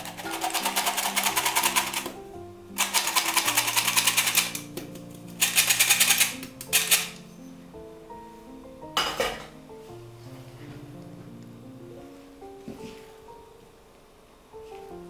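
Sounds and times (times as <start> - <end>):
soft instrumental music: 0.0 - 15.0.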